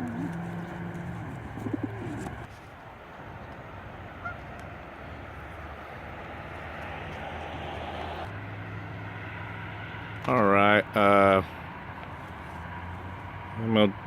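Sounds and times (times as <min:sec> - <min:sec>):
outdoor background noise: 0:00.0 - 0:14.0
goose honking: 0:04.2 - 0:04.5.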